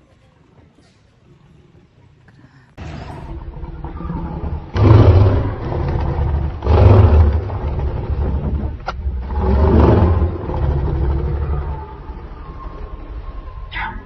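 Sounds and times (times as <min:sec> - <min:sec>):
continuous low rumble: 0:02.2 - 0:14.0
big cats growling and snarling: 0:02.8 - 0:14.0.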